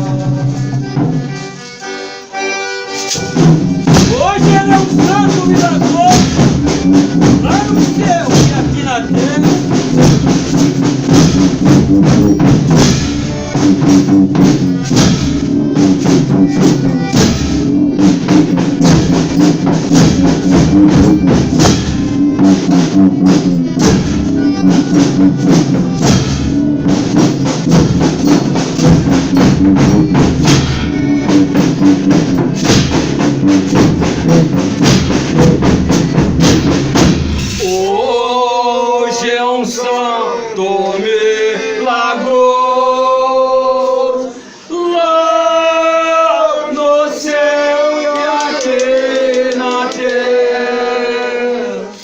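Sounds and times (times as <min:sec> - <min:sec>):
drums and tambourine beat: 0:00.0 - 0:38.1, 0:48.3 - 0:50.5
sustained instrument tones: 0:11.6 - 0:39.0.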